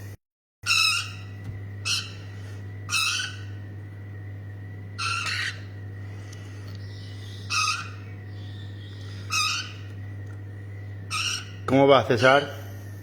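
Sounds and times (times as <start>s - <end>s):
steady low hum: 0.0s - 13.0s
young parrots squawking: 0.7s - 3.6s, 5.0s - 5.7s, 6.8s - 10.0s, 11.1s - 12.4s.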